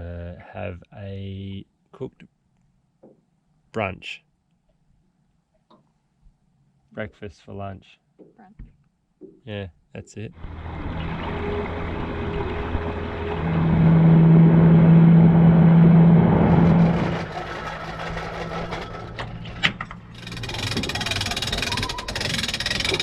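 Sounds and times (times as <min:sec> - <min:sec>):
outboard motor running: 0:10.4 - 0:19.2, 0:20.1 - 0:23.0.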